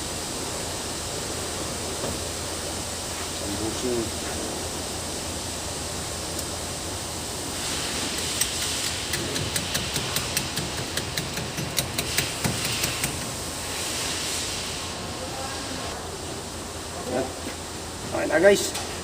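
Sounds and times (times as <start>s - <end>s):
steady hiss: 0.0s - 19.0s
sharp metallic taps and clicks: 8.2s - 13.3s.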